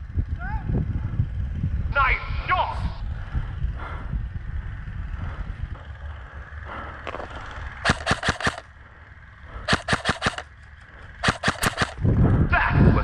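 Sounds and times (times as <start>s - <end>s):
low rumble of wind: 0.0s - 13.0s
airsoft gun full-auto bursts: 7.8s - 8.7s, 9.7s - 10.6s, 11.2s - 12.0s.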